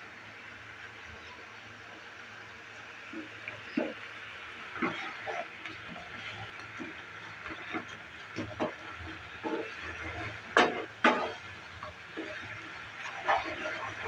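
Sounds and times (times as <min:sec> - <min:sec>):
chutney hissing in a pan: 0:02.8 - 0:14.0
spatula stirring: 0:03.5 - 0:14.0.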